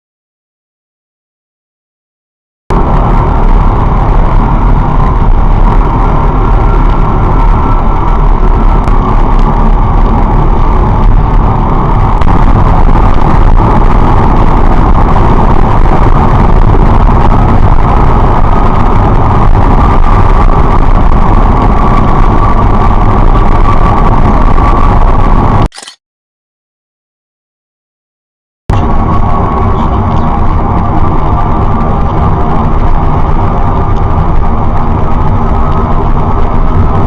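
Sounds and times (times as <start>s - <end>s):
car engine and road noise: 2.7s - 26.0s, 28.7s - 37.0s.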